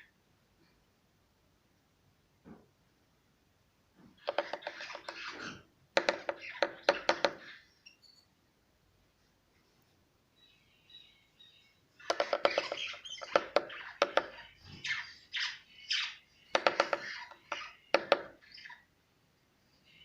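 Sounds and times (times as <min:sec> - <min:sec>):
bird tapping on glass: 0:04.2 - 0:05.3, 0:06.0 - 0:07.5, 0:12.0 - 0:14.4, 0:16.5 - 0:18.4
soft bird chirping: 0:04.2 - 0:08.4, 0:09.8 - 0:19.0, 0:19.6 - 0:20.0
bird squawking: 0:04.3 - 0:07.7, 0:12.0 - 0:18.9.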